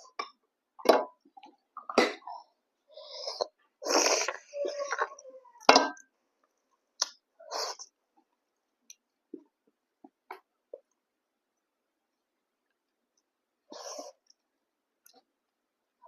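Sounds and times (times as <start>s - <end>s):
mouth slurping: 3.1s - 5.2s.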